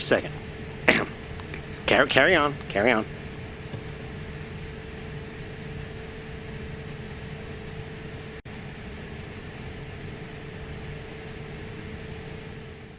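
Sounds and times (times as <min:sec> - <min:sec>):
steady hum: 0:00.0 - 0:12.9
aircraft cockpit rushing noise: 0:00.8 - 0:08.4.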